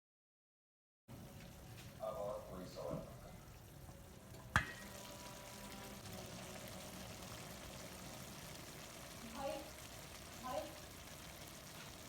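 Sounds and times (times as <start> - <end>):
water pouring into pot: 2.7 - 12.0.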